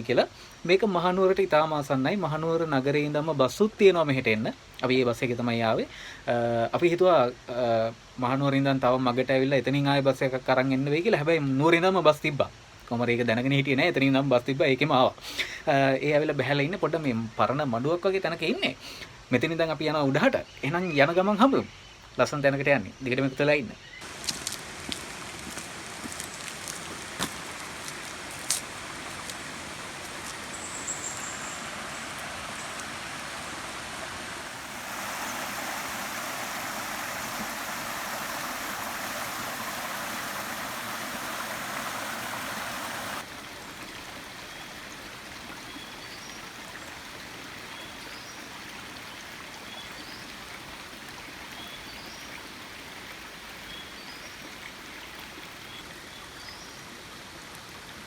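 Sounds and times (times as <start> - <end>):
running water rushing: 24.0 - 58.0
bird chirps: 30.4 - 32.8.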